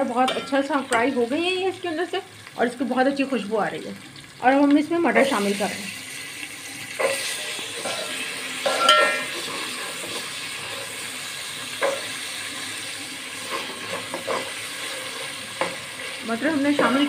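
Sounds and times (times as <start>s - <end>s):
peas sizzling in hot oil: 0.0s - 17.0s
metal spoon scraping a pot: 6.9s - 11.0s, 13.4s - 17.0s
ringing clang of spoon on pot: 8.7s - 9.2s.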